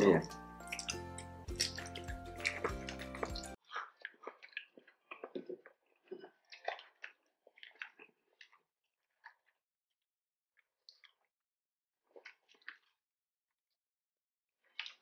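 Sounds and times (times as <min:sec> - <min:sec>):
chewing crunchy fried food: 0:00.2 - 0:09.6, 0:10.6 - 0:11.3, 0:12.1 - 0:13.0, 0:14.6 - 0:15.0.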